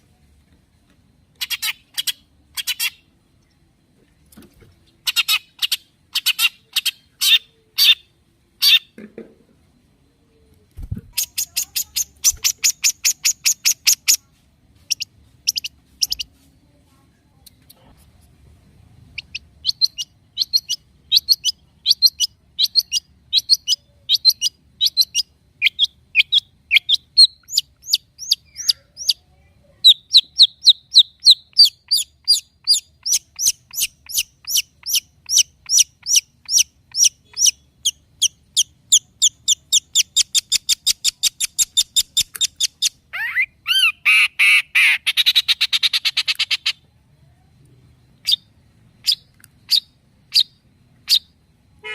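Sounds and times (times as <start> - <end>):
harsh rasping bird chatter: 1.4 - 3.0, 11.1 - 14.2, 14.9 - 16.3.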